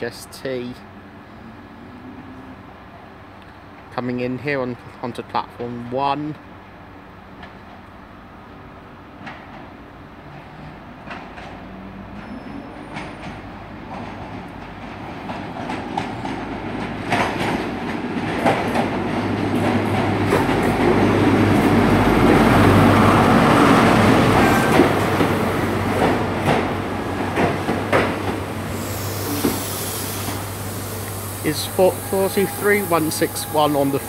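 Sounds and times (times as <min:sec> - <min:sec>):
diesel engine hum: 0:20.2 - 0:34.0.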